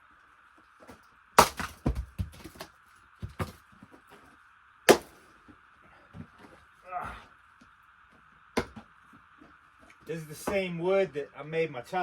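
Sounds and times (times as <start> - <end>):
firewood pieces knocking together: 0.8 - 3.7, 4.9 - 5.2, 8.6 - 8.9.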